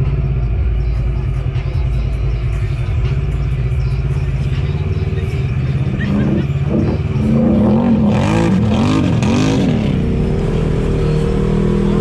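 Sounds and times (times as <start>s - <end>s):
off-road vehicle engine droning: 0.0s - 12.0s.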